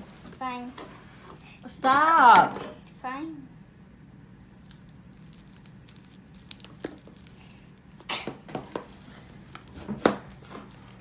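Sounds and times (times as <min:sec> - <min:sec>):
slime squelching and popping: 0:04.4 - 0:08.2.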